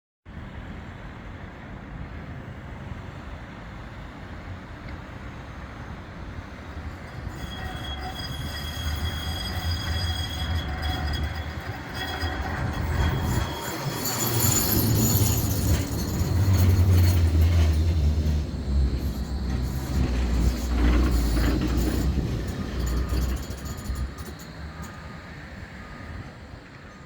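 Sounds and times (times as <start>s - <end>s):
tram rumbling on rails: 0.5s - 27.0s
wheels squealing: 6.6s - 26.0s.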